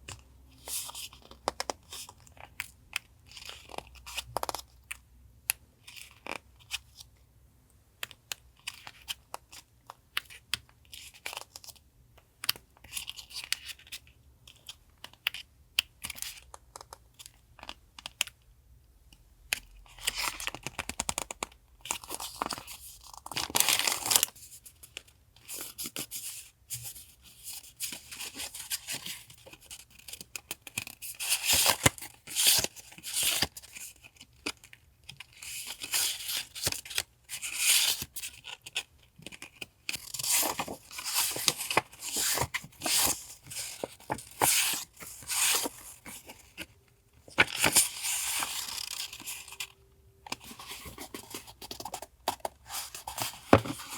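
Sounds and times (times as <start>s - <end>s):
paper crinkling and rustling: 19.9s - 53.9s.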